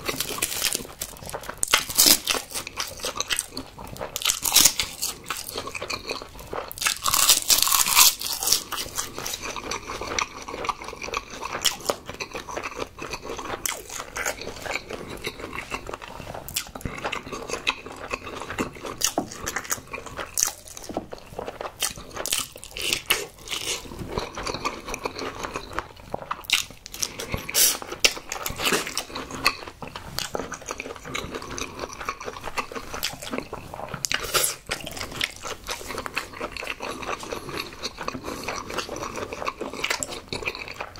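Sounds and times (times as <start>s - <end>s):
crisp crunching bites: 0.0s - 10.2s
chewing with crisp clicks: 0.0s - 40.9s.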